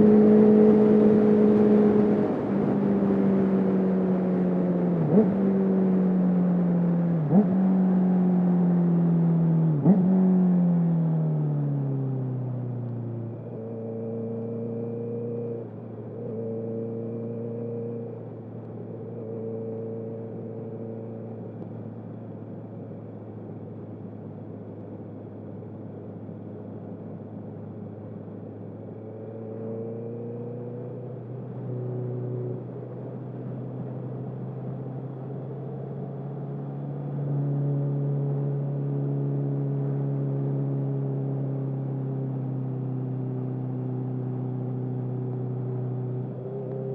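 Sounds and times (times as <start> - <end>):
motorcycle engine revving: 7.2 - 8.0, 9.7 - 10.4.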